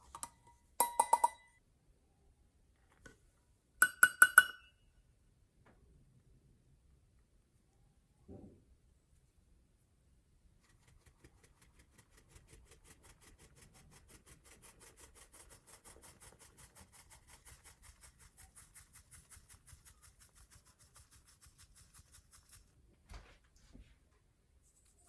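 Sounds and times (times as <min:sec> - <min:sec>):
hand whisk beating in bowl: 0:00.0 - 0:01.4, 0:03.8 - 0:04.6, 0:11.0 - 0:22.7.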